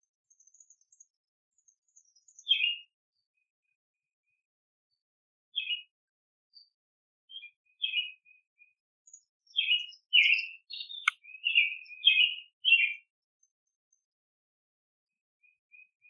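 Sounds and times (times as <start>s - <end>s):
songbirds chirping: 0.3s - 2.9s, 6.5s - 8.3s, 9.1s - 13.1s.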